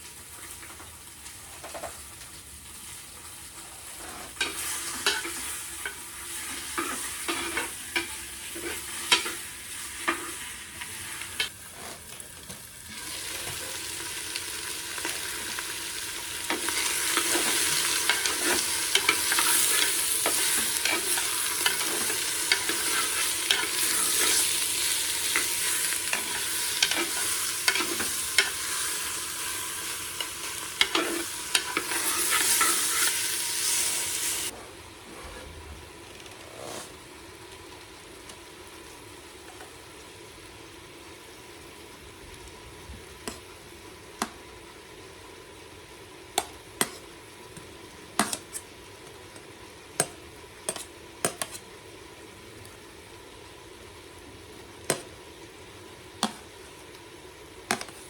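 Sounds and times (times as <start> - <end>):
meat sizzling in a pan: 0.0 - 34.5.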